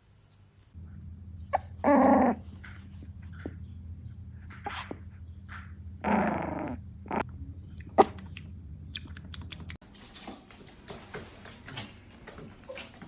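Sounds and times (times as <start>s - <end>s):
dog growling whine: 1.5s - 2.7s, 6.0s - 7.3s.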